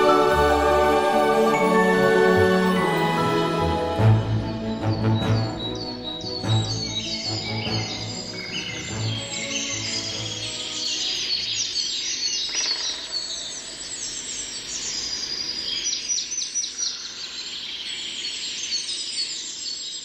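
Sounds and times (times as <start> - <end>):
music track low notes: 0.0 - 11.2
birds chirping and singing: 3.7 - 20.0.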